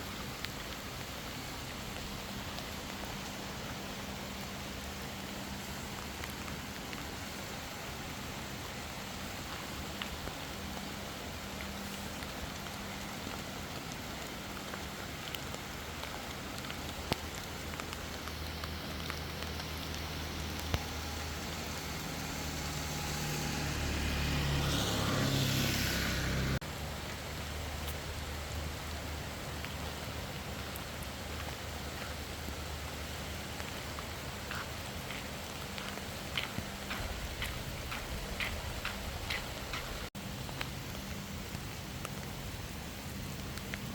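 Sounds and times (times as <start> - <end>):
road noise: 0.0 - 43.9
steady rain: 0.0 - 43.9
low motor hum: 17.3 - 28.9
vehicle passing: 19.7 - 26.6.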